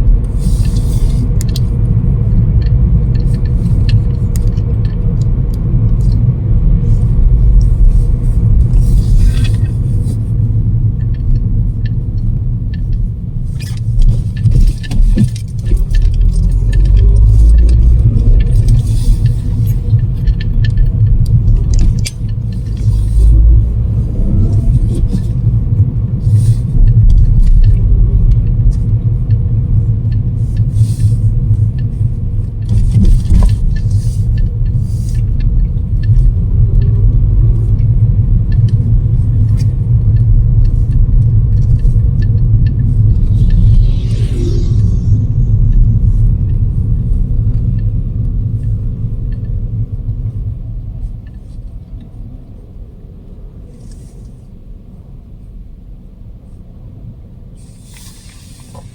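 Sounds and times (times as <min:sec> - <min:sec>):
storm wind buffeting microphone: 0:40.0 - 0:49.1.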